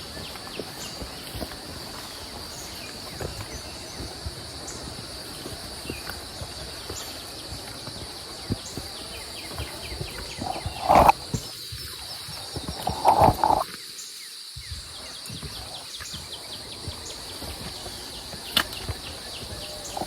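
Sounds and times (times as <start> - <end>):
footsteps: 0.0 - 13.7
insects droning: 0.0 - 20.0.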